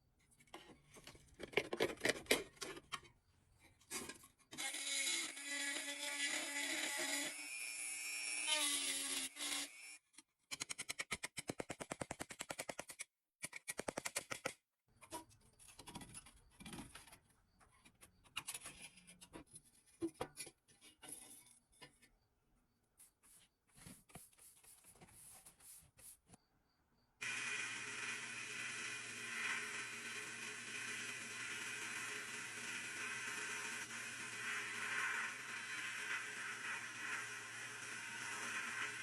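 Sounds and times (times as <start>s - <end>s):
small power tool whining: 4.5s - 10.0s, 27.2s - 39.0s
scraping and handling noises: 23.0s - 26.4s.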